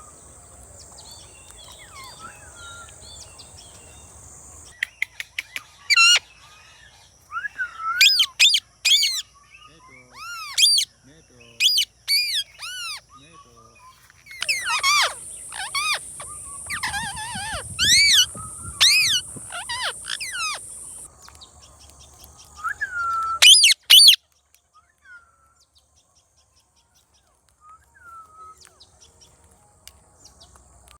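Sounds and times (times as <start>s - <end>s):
faint chirps: 0.0s - 4.8s, 7.4s - 21.1s
parakeet screeching: 8.0s - 9.2s, 10.1s - 10.9s, 11.6s - 13.0s, 14.3s - 21.1s, 23.4s - 24.2s.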